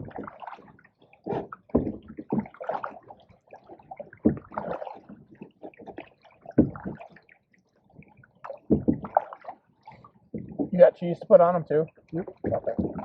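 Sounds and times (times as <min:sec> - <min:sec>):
paddle strokes splashing: 0:00.0 - 0:07.4, 0:08.0 - 0:10.8, 0:12.1 - 0:13.0
low thuds: 0:01.7 - 0:02.6, 0:04.2 - 0:04.6, 0:06.6 - 0:07.1, 0:08.7 - 0:09.2, 0:12.2 - 0:13.0.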